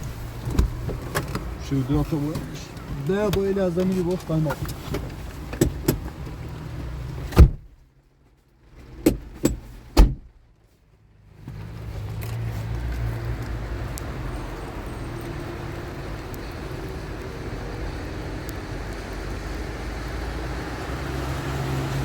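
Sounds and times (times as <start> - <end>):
car low rumble: 0.0 - 22.0
sharp knocks or clicks: 9.0 - 10.3.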